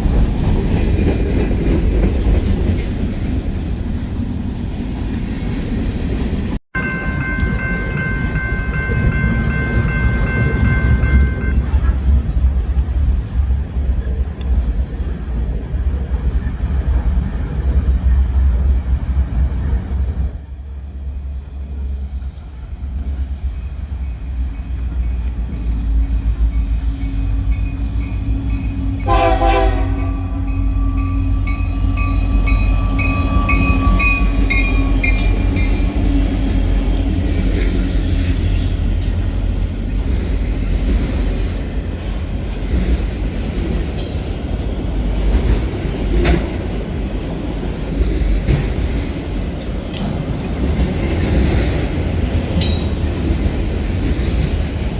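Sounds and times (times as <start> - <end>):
train rumbling past: 0.0 - 54.9
wheels clacking over rail joints: 24.0 - 54.9
locomotive horn: 28.9 - 35.0.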